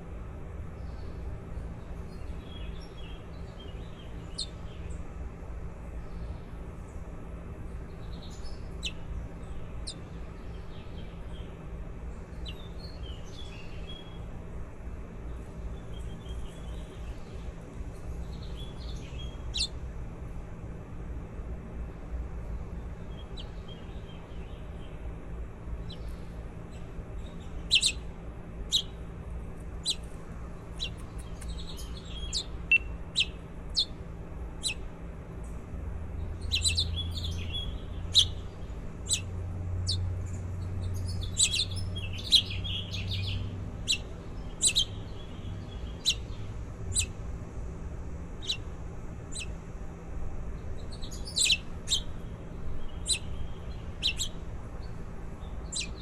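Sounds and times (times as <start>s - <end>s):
steady low hum: 0.0s - 56.0s
baby birds chirping: 2.2s - 4.7s, 8.0s - 11.5s, 12.4s - 14.1s, 18.3s - 19.8s, 25.7s - 29.0s, 29.6s - 34.0s, 34.6s - 34.9s, 36.2s - 47.2s, 48.3s - 48.7s, 49.3s - 49.6s, 50.7s - 56.0s.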